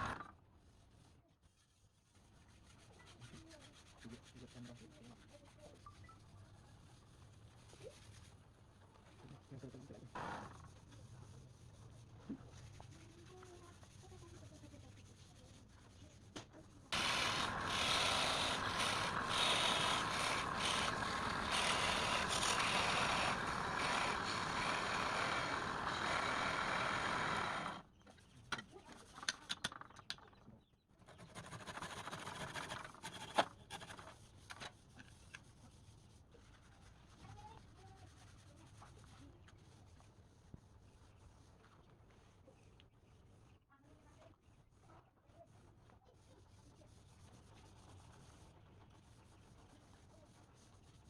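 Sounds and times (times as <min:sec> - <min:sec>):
power tool scraping: 0:16.9 - 0:27.8.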